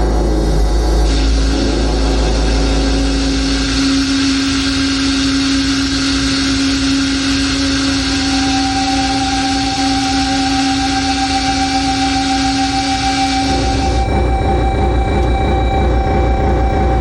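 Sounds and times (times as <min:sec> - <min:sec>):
distorted black metal guitars: 0:00.0 - 0:17.0
held low note: 0:00.0 - 0:17.0
higher held note: 0:07.7 - 0:16.1.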